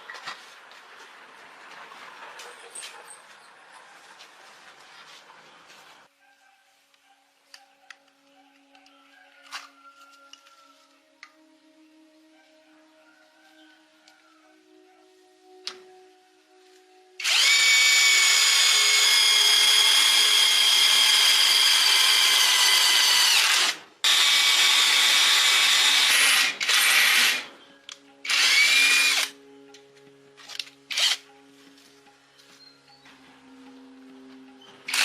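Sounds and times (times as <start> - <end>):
electric power tool motor running: 17.2 - 27.4, 28.3 - 29.3.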